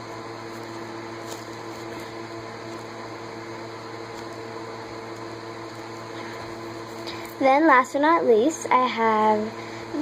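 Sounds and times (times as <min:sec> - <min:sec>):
electric fan whirring: 0:00.0 - 0:10.0.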